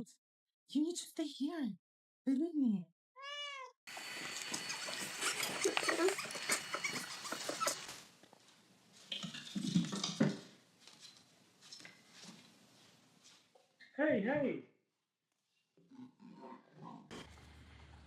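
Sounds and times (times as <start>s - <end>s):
dog whining: 4.6s - 8.0s.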